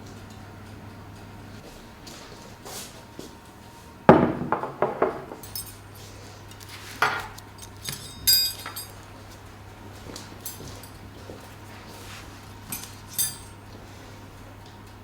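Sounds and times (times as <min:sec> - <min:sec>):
low steady hum: 0:03.1 - 0:14.2
glass clinking: 0:04.1 - 0:05.8, 0:07.0 - 0:09.0, 0:12.7 - 0:13.6
dishes clattering: 0:04.1 - 0:05.9, 0:07.0 - 0:09.0.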